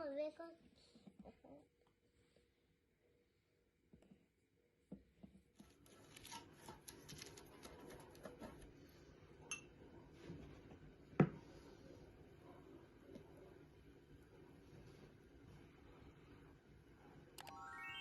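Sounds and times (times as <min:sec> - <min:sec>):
small clicks and rustles: 0:05.6 - 0:08.2.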